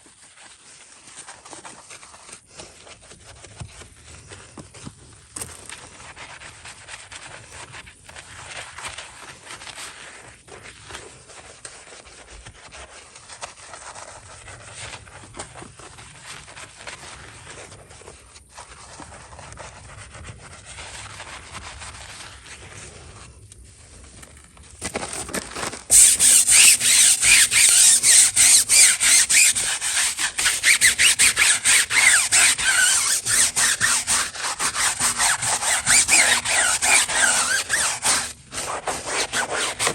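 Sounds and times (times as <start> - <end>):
scrubbing a car: 0.1 - 39.9
water spray: 25.9 - 39.9.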